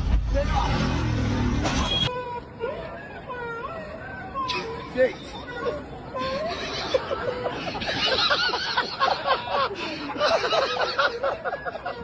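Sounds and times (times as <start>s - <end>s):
people laughing and exclaiming: 2.5s - 12.0s.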